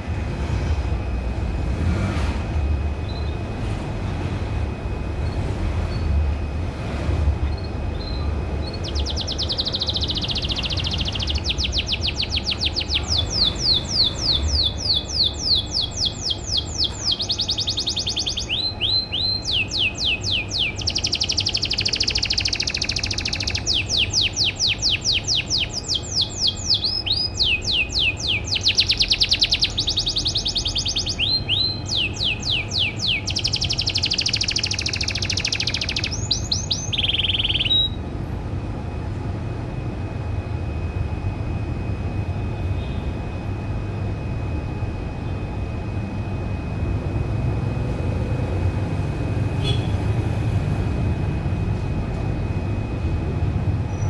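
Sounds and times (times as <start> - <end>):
low steady rumble: 0.0 - 54.0
canary singing trills: 3.0 - 3.5, 7.4 - 38.1, 49.4 - 51.0.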